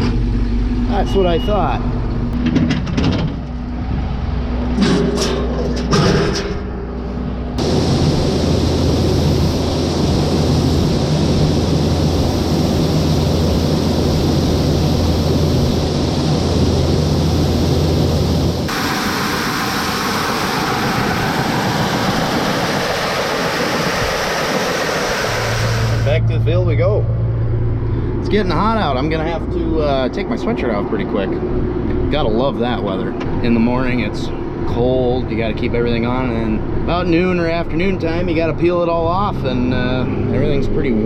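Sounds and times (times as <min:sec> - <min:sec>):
loud rushing noise: 0:03.6 - 0:29.4.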